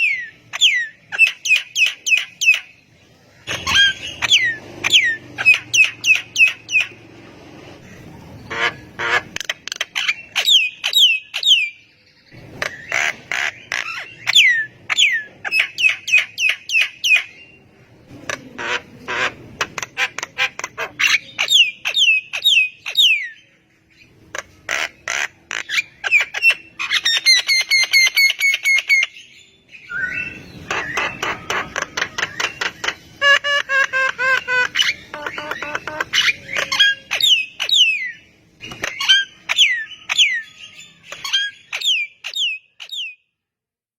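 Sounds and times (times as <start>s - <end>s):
myna calling: 7.8s - 11.6s, 30.0s - 41.3s.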